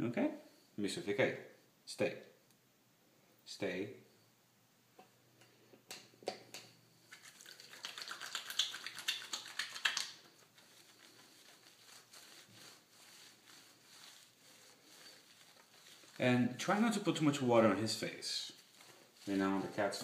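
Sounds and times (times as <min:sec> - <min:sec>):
water splashing and trickling: 0:07.1 - 0:10.7.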